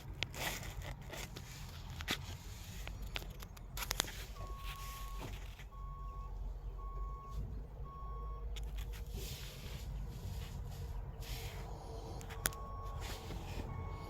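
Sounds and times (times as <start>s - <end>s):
low engine rumble: 0.0s - 14.0s
vehicle backup alarm beeping: 4.1s - 9.9s, 11.2s - 14.0s.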